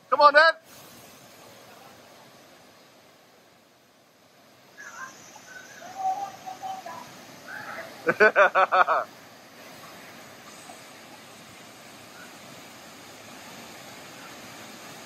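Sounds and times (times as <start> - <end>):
waterfall rushing: 0.3 - 15.0
bird calling: 4.8 - 8.1.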